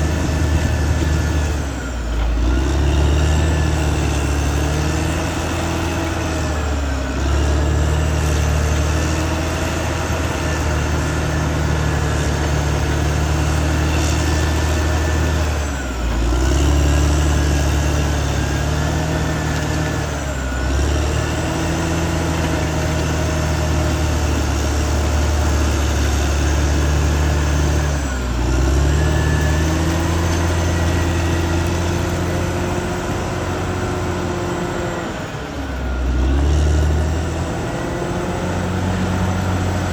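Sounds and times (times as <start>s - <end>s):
bulldozer diesel engine under load: 0.0s - 39.9s.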